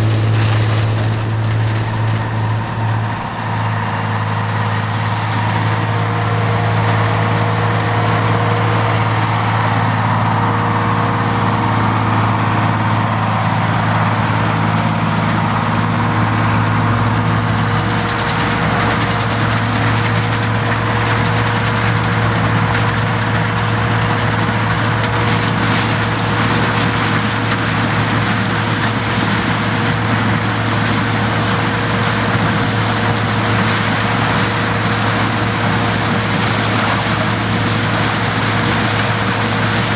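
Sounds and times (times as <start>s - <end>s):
threshing machinery rushing: 0.0s - 4.0s
combine engine drone: 0.0s - 4.2s
steady machine whine: 0.0s - 4.2s.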